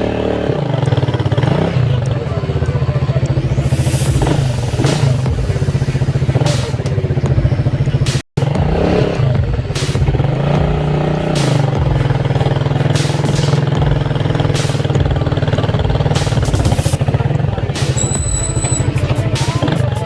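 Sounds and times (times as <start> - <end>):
motorcycle engine rumbling: 0.0 - 20.0.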